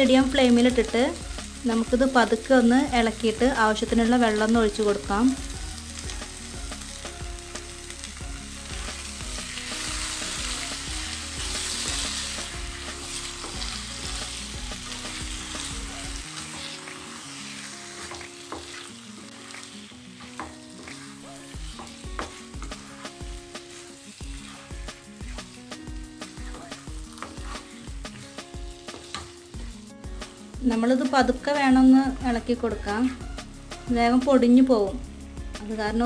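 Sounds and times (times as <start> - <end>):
meat sizzling in hot oil: 0.0 - 36.0
spatula scraping and tapping pan: 11.5 - 13.8, 14.8 - 29.8.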